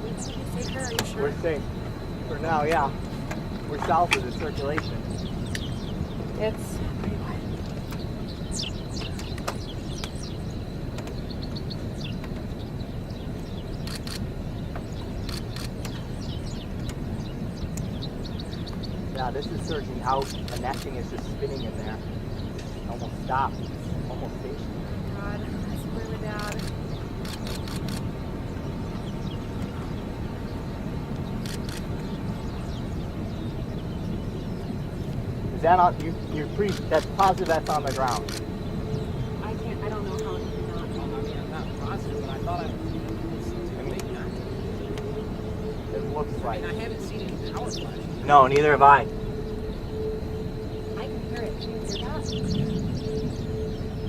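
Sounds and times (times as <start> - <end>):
birds chirping: 0.0 - 54.0
wind rumbling on microphone: 0.0 - 54.0
sharp clicks: 13.8 - 14.3, 20.2 - 21.3, 36.6 - 38.5.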